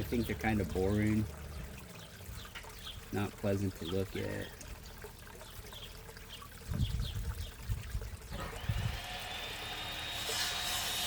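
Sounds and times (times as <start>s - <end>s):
pond water trickling: 0.0s - 11.0s
distant power tool whine: 8.4s - 11.0s.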